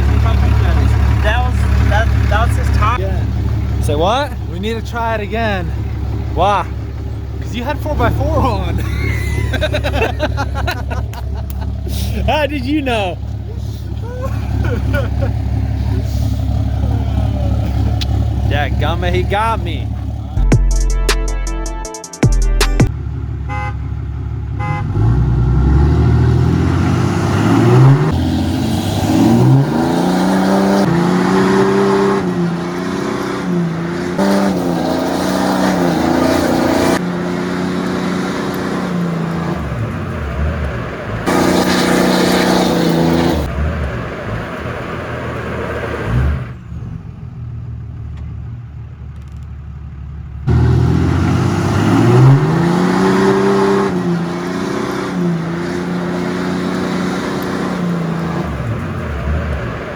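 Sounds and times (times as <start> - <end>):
diesel truck engines revving: 0.0 - 20.5, 22.8 - 59.9.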